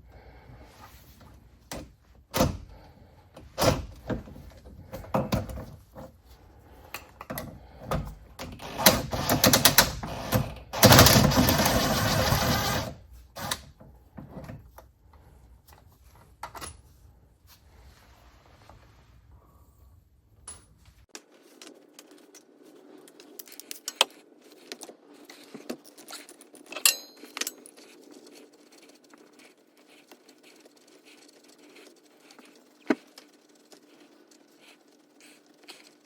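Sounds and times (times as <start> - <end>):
metal tools clinking: 25.8 - 27.9.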